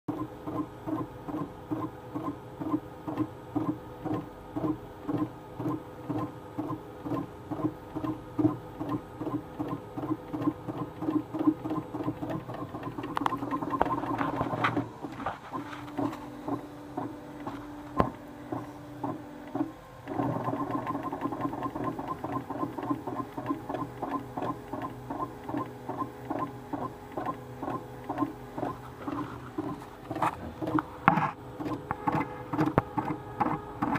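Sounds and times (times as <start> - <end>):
stepper motor buzzing in pulses: 0.1 - 33.9.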